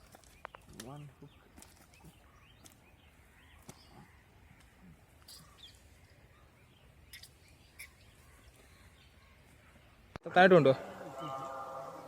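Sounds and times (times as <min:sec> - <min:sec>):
faint bird chirps: 0:00.2 - 0:10.1.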